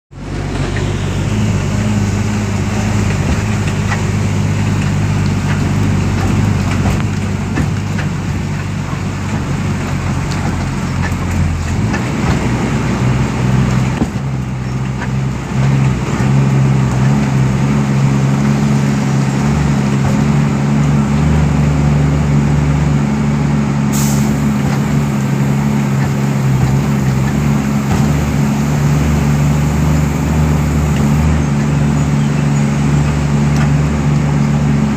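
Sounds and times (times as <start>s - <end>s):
heavy diesel engine running: 0.1s - 34.9s
short hiss of air: 23.9s - 31.2s.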